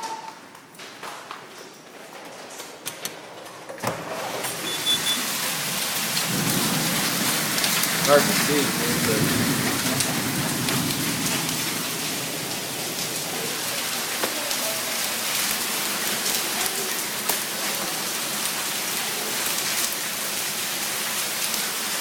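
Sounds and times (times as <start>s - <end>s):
hail and rain falling: 4.1s - 22.0s
hailstones ticking: 4.6s - 22.0s.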